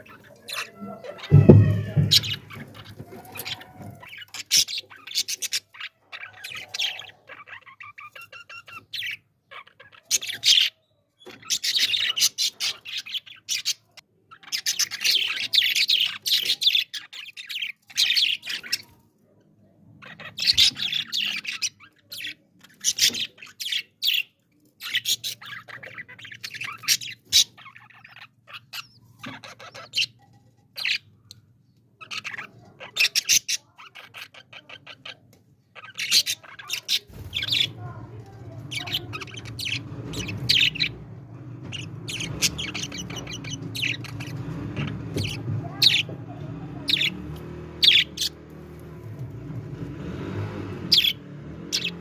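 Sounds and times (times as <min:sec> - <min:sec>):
bird squawk: 0:00.0 - 0:10.8, 0:24.9 - 0:31.0, 0:41.7 - 0:46.2, 0:46.8 - 0:47.2, 0:47.8 - 0:48.4
budgerigars chattering and chirping: 0:00.0 - 0:19.0, 0:19.9 - 0:31.4, 0:32.0 - 0:52.0.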